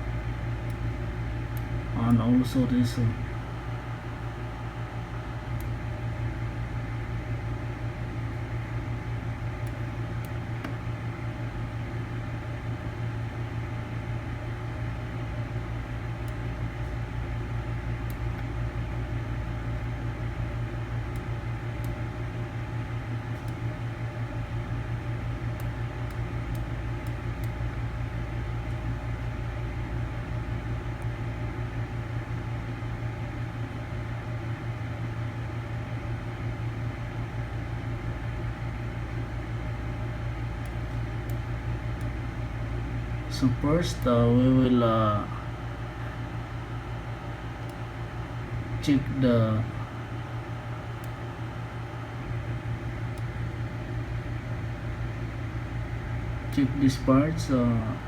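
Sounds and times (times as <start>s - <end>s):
fan motor humming: 0.0s - 58.0s.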